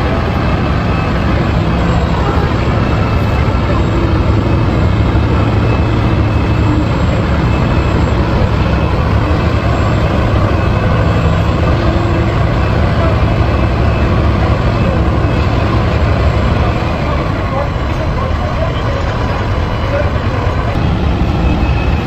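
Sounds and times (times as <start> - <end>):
dump truck engine rumbling: 0.0 - 22.0.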